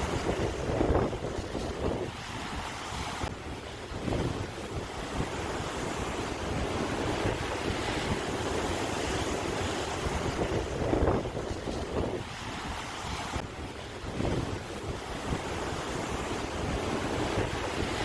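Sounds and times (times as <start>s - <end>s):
ocean waves breaking: 0.0s - 18.0s
wind on microphone: 0.0s - 18.0s.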